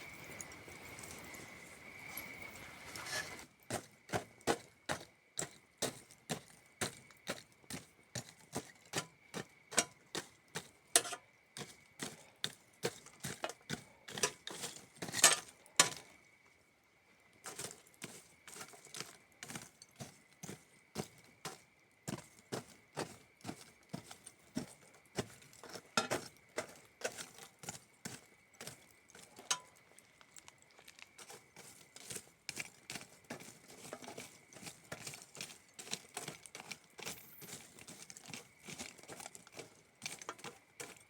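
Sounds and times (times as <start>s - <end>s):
crickets trilling: 0.0s - 41.0s
campfire crackling and popping: 29.5s - 31.3s.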